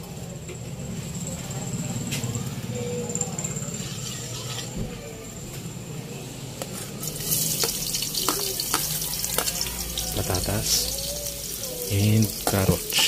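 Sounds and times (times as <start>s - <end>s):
potatoes sizzling in hot oil: 7.0s - 13.0s
plate tapping a wok: 7.6s - 9.6s.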